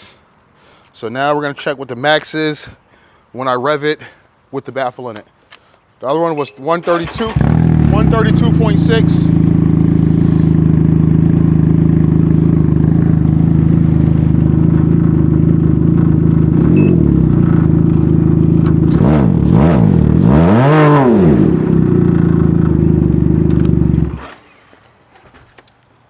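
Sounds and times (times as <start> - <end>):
engine idling and revving: 6.9 - 24.4.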